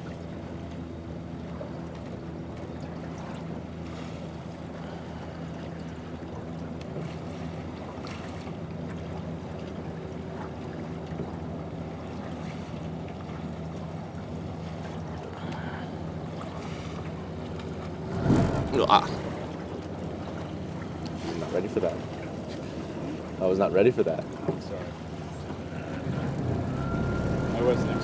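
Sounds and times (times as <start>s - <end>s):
low motor-like hum: 0.0s - 28.0s
oars splashing and knocking: 5.7s - 26.8s.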